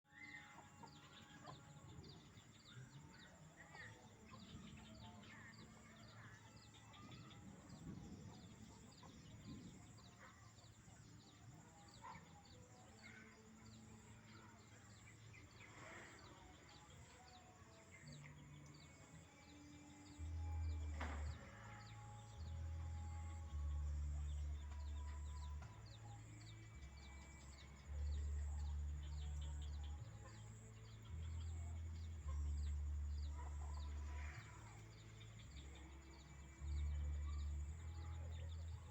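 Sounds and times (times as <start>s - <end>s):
chicks and sparrows chirping: 0.2s - 23.6s, 24.2s - 38.9s.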